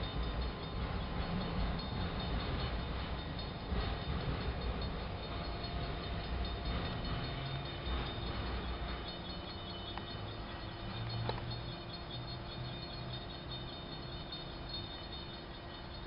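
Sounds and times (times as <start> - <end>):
freight train wheels rumbling on rail: 0.0 - 16.0.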